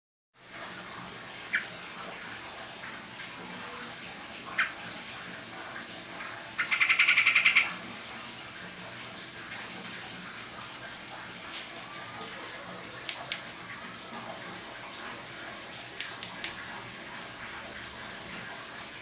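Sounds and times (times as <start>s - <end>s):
bird chattering trill: 6.6s - 7.7s.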